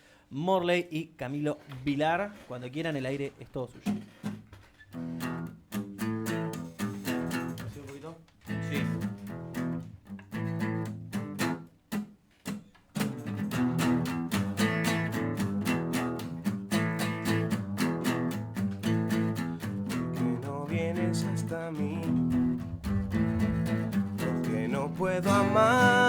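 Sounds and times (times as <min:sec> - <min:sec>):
guitar strumming chords: 0:13.1 - 0:26.0.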